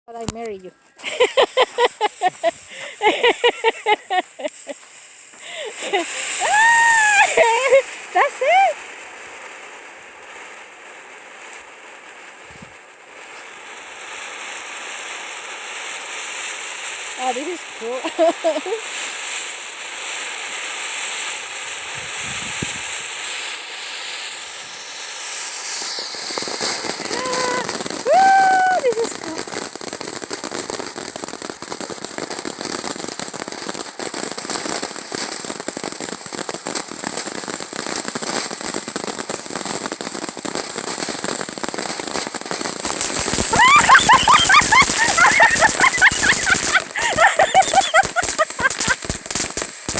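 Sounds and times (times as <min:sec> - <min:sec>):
firecrackers popping: 0:00.1 - 0:49.9
steady hiss: 0:00.1 - 0:49.9.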